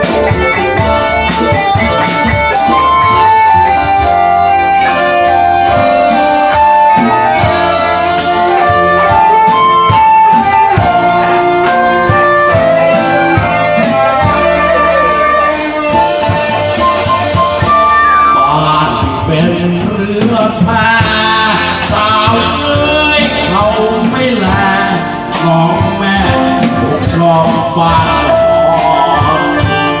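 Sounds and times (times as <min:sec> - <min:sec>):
bass: 0:00.0 - 0:30.0
keyboard melody: 0:00.0 - 0:30.0
steady drum beat: 0:00.0 - 0:30.0.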